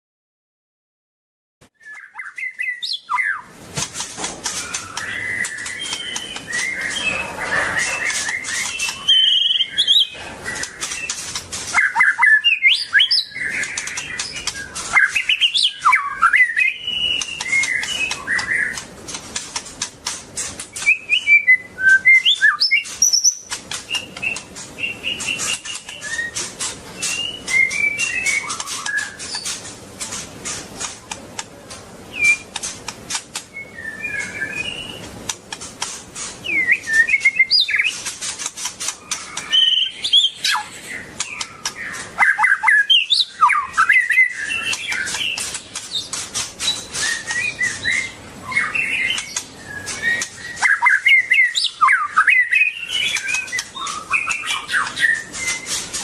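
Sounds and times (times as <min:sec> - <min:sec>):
bird singing whistled phrases: 0:01.7 - 0:03.5, 0:04.5 - 0:11.1, 0:11.7 - 0:18.8, 0:20.7 - 0:26.4, 0:27.0 - 0:29.4, 0:32.1 - 0:32.5, 0:33.5 - 0:35.0, 0:36.4 - 0:38.0, 0:39.1 - 0:45.4, 0:46.7 - 0:55.8
sharp clicks: 0:17.0 - 0:21.0, 0:22.8 - 0:33.5, 0:35.1 - 0:36.4, 0:37.7 - 0:39.6, 0:44.4 - 0:47.1, 0:53.0 - 0:56.0.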